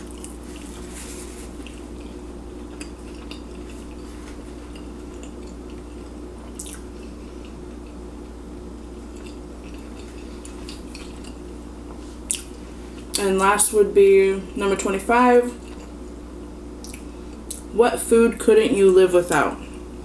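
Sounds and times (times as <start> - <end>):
close-up chewing and mouth clicks: 0.0 - 8.0, 9.0 - 11.4, 12.3 - 13.2, 15.6 - 16.0, 16.8 - 17.7
low electrical hum: 0.0 - 20.0.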